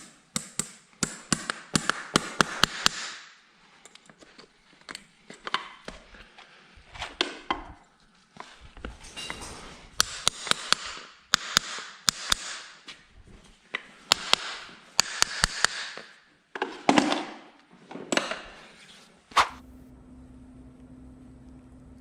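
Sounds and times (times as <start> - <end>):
faint steady hum: 19.6 - 22.0.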